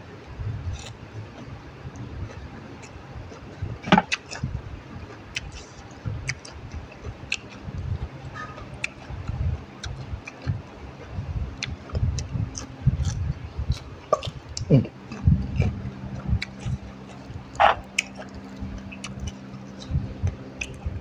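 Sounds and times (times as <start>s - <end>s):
chewing raw vegetables: 0.7s - 4.5s, 5.1s - 21.0s
wet mouth clicks: 11.6s - 20.9s.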